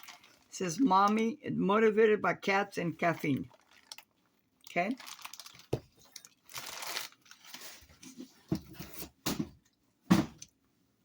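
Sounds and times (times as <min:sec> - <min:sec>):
wrapping crinkling and rustling: 0:00.0 - 0:01.3, 0:02.9 - 0:09.1.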